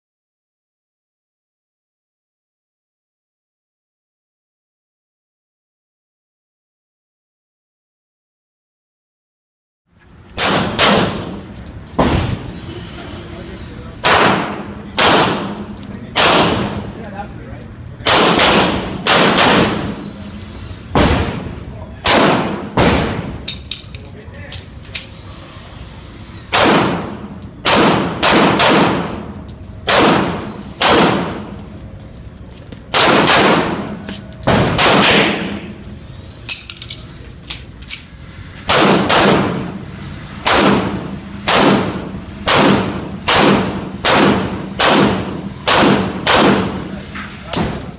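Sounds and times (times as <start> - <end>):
pistol shots with echo: 10.4 - 11.4, 14.0 - 16.9, 18.0 - 20.0, 21.0 - 23.4, 26.5 - 29.3, 29.9 - 31.6, 32.9 - 35.7, 38.7 - 39.8, 40.4 - 46.9.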